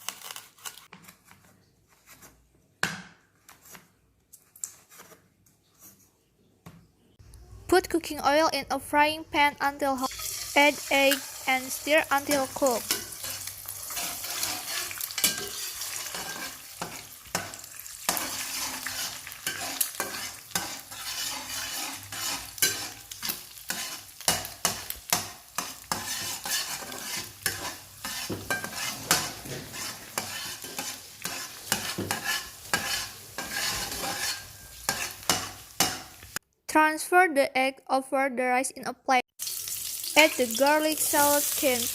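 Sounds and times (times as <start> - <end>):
egg sizzling in a frying pan: 10.0 - 36.4, 39.4 - 41.9
spatula scraping a pan: 10.0 - 36.4.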